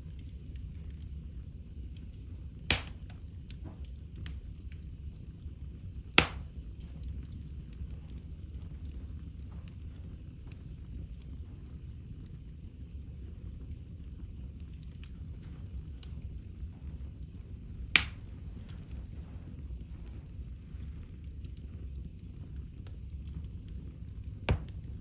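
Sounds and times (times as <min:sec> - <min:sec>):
wood fire crackling: 0:00.0 - 0:25.0
loud sharp pop: 0:02.7 - 0:03.0, 0:06.2 - 0:06.5, 0:24.5 - 0:24.8.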